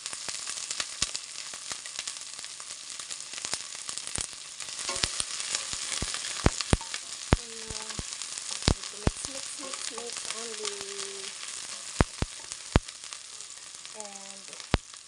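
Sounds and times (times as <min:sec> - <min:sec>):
onion frying in a pan: 0:00.0 - 0:15.0
stirring clicks and knocks: 0:04.8 - 0:13.5.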